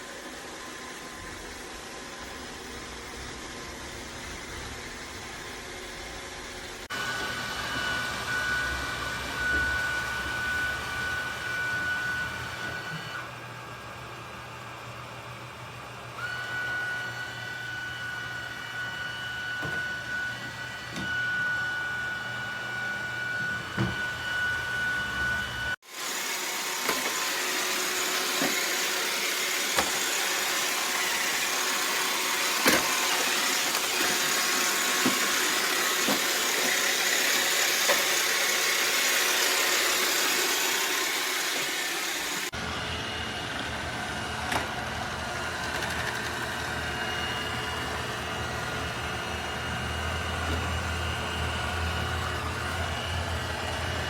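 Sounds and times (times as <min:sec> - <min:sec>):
robot vacuum motor whine: 0:00.0 - 0:54.0
vacuum knocking into things: 0:29.5 - 0:38.2.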